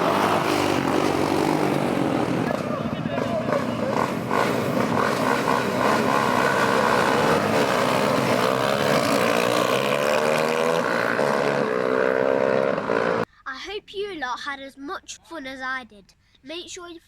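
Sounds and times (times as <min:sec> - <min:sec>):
vehicle engine running: 0:00.0 - 0:09.9.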